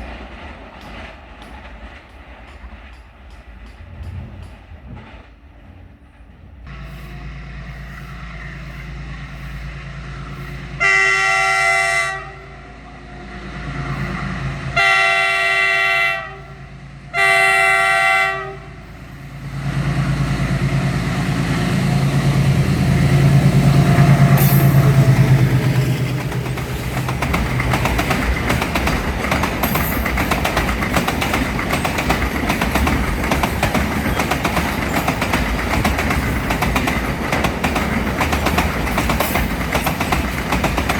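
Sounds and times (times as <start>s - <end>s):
train wagons clattering over rail joints: 0.0s - 6.6s, 21.4s - 40.9s
diesel locomotive engine rumbling: 0.0s - 40.9s
locomotive horn blasts: 10.3s - 13.0s, 14.7s - 19.0s.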